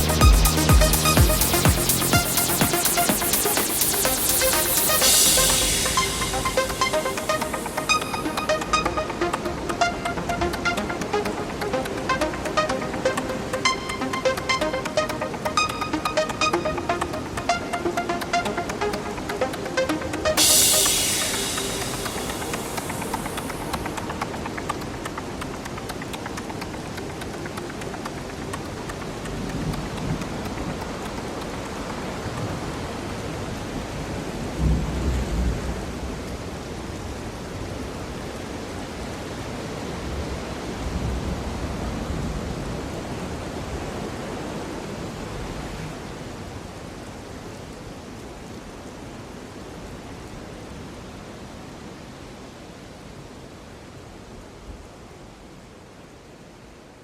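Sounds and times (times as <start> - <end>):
rain-like rushing noise: 0.0 - 57.0.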